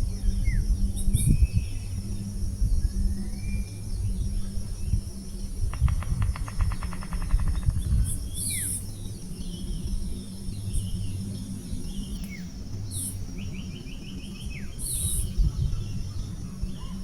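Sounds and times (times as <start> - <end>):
high insect buzz: 0.0 - 17.0
rapid pulsed rattle: 5.4 - 9.0.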